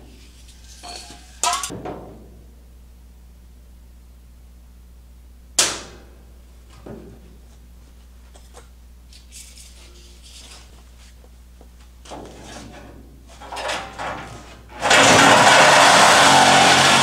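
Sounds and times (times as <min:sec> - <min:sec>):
power saw cutting sheet steel: 0:14.8 - 0:17.0.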